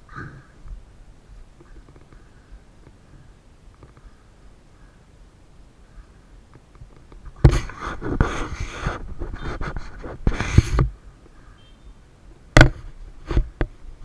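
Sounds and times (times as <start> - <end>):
sharp knocks: 12.6 - 13.5.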